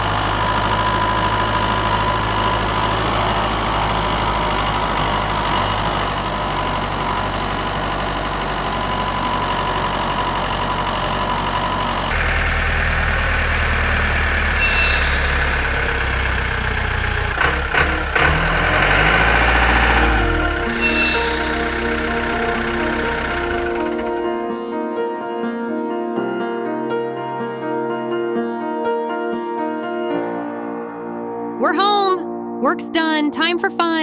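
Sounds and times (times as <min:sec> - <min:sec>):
tractor engine running: 0:00.0 - 0:24.4
rising tones: 0:00.0 - 0:24.5
louder engine sound: 0:00.0 - 0:24.6.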